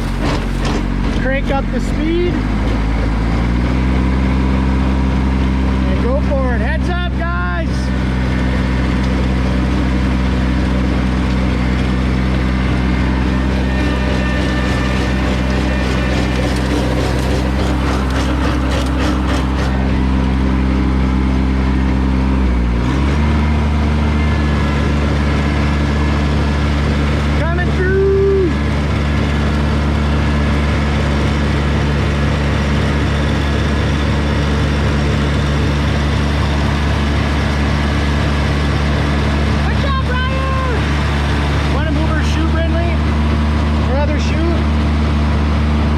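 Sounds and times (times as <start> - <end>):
rotary tiller: 0.0 - 2.9, 8.8 - 20.5
tractor diesel engine running: 0.0 - 45.9.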